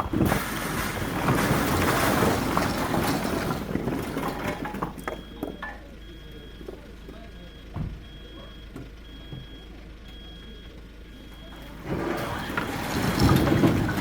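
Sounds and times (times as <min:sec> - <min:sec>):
logs tumbling and clattering: 0:00.0 - 0:05.8, 0:11.4 - 0:14.0.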